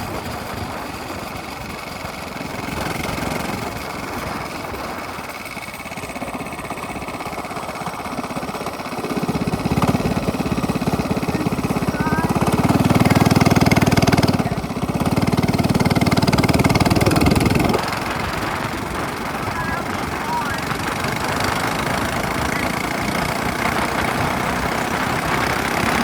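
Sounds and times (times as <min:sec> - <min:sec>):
minibike engine exhaust pulses: 0:00.0 - 0:26.0.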